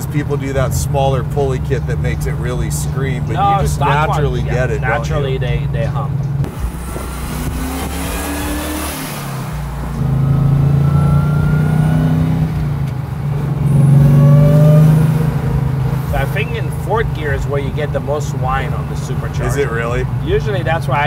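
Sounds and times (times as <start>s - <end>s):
car engine accelerating: 0.0s - 21.0s
supercharger whine: 6.4s - 17.9s.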